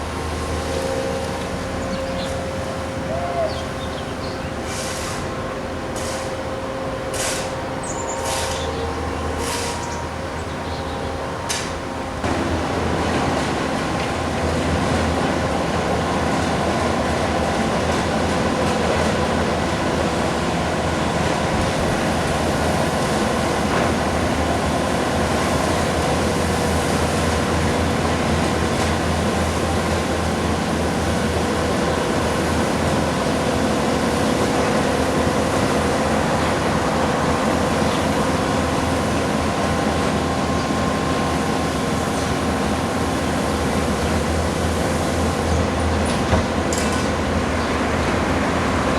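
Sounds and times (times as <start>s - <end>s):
skid-steer loaders droning: 0.0s - 48.9s.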